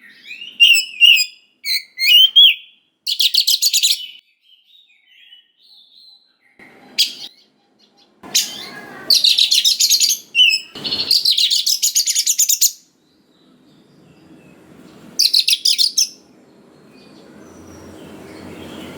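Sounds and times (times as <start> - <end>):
bird singing whistles and rattling trills: 0.2 - 4.2, 8.3 - 12.8, 15.2 - 16.2.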